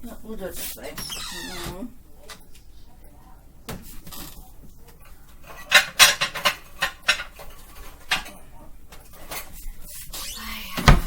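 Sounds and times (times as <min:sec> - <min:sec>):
utensils clinking and scraping in pan: 0:03.9 - 0:10.3.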